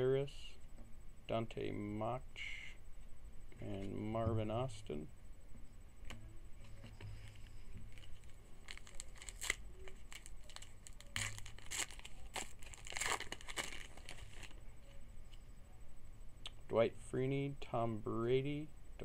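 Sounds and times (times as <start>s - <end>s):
wrapper tearing and crinkling: 7.4s - 14.6s.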